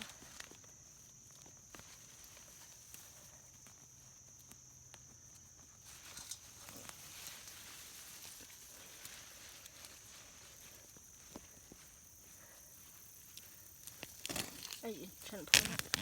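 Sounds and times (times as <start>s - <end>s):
digging in soil: 5.7s - 16.0s.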